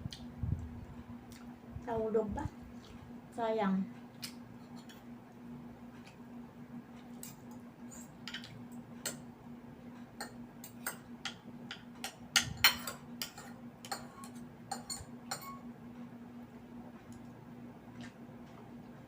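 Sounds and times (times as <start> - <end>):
faint steady hum: 0.0 - 19.0
utensils clinking on dishes: 10.2 - 15.7.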